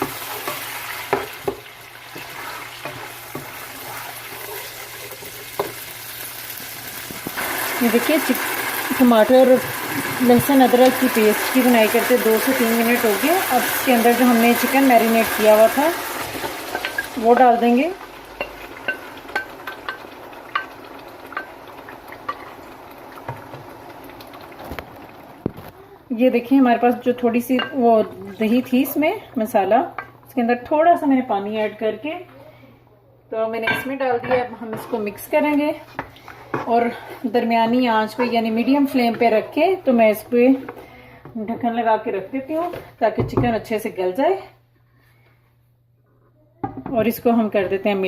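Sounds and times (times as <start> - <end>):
food sizzling in hot oil: 0.0 - 25.6
spoon knocking and scraping pot: 18.3 - 21.6, 33.6 - 35.2, 38.0 - 39.5.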